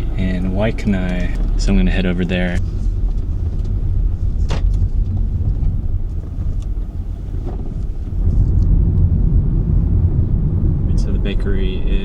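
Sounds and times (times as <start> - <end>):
car interior road and engine rumble: 0.0 - 12.0.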